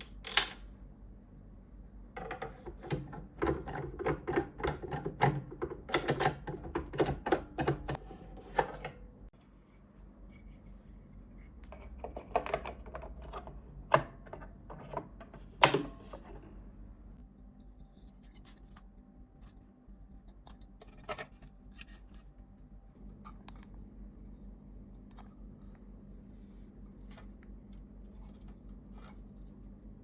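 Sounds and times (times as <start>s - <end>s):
small parts and tools clicking: 0.0s - 0.7s
faint steady hum: 0.0s - 30.0s.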